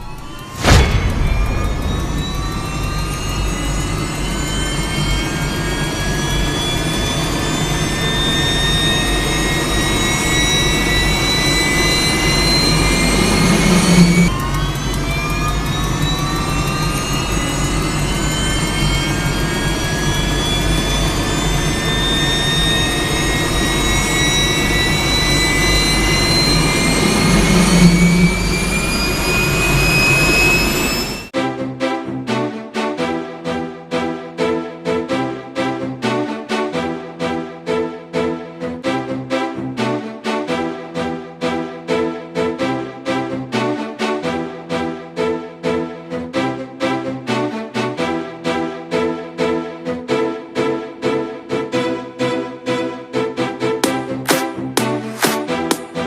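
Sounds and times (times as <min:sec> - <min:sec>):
low rumble: 0:00.0 - 0:08.1
jet engine whine: 0:00.0 - 0:31.4.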